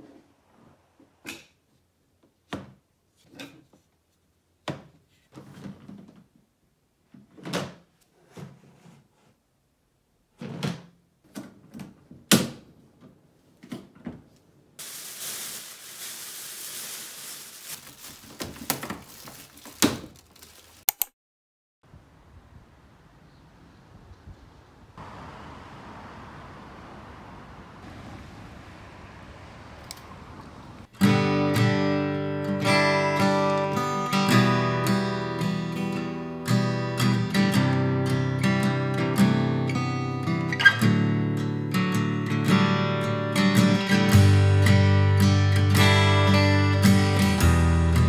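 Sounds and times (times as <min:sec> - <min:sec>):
plastic bin bag rustling: 0:14.8 - 0:20.9.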